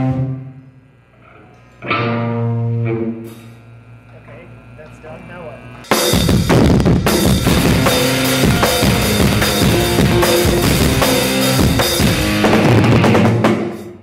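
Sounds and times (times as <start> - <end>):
rock band music: 1.8 - 3.4, 5.8 - 14.0
drum kit pounding: 5.8 - 14.0.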